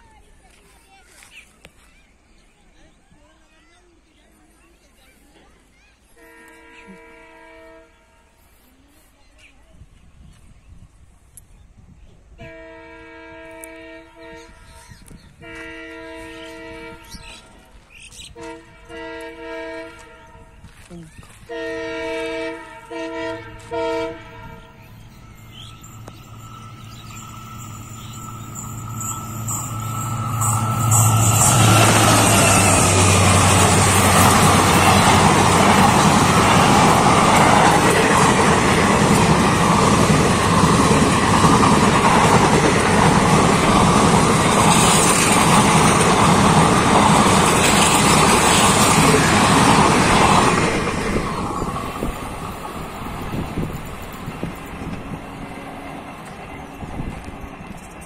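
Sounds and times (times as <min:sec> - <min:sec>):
train horn blasts: 0:06.1 - 0:08.6, 0:12.4 - 0:20.8, 0:21.4 - 0:38.2
passenger train passing: 0:11.8 - 0:58.0.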